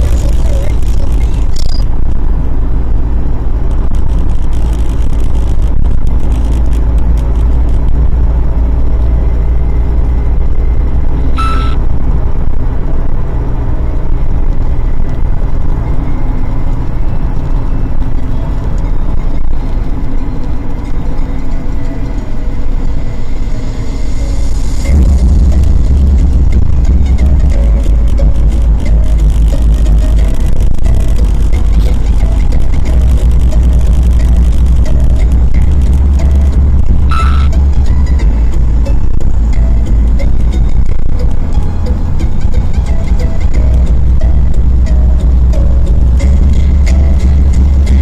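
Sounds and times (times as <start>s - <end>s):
car engine and road noise: 0.0s - 48.0s
high chirp: 11.3s - 11.8s, 37.1s - 37.8s.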